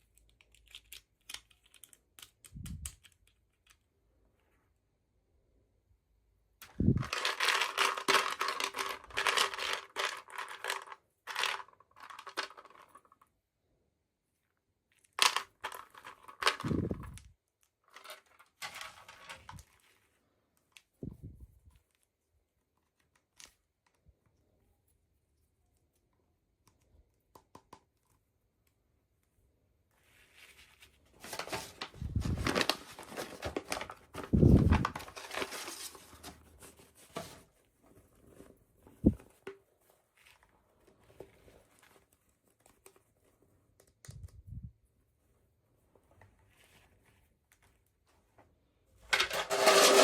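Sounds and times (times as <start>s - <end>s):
plastic pieces clicking: 0.0s - 3.8s, 6.6s - 13.0s, 15.1s - 17.3s
packaging crinkling and tearing: 31.2s - 36.4s.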